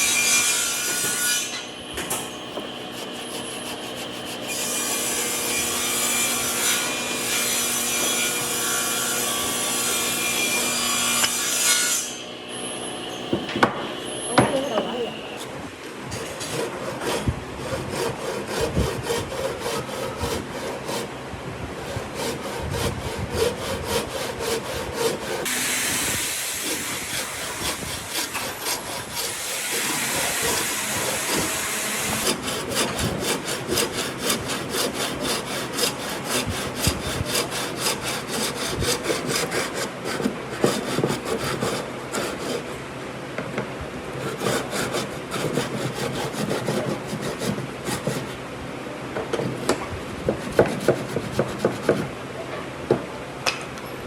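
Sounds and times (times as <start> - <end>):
wood being sawed or rasped by hand: 0.0 - 12.2, 14.5 - 42.9, 44.0 - 48.5, 49.4 - 52.2.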